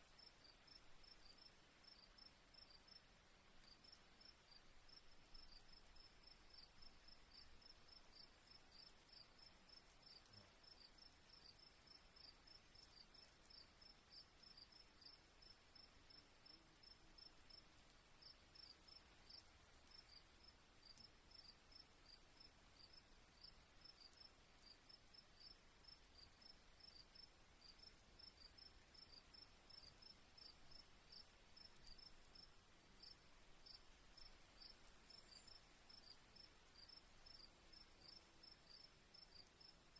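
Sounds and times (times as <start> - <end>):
crickets chirping: 0.2 - 39.9.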